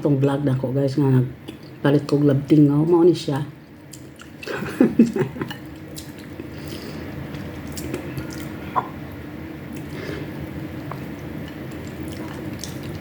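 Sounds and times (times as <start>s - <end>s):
steady low hum: 0.0s - 13.0s
wet chewing mouth sounds: 5.5s - 9.0s, 9.7s - 13.0s.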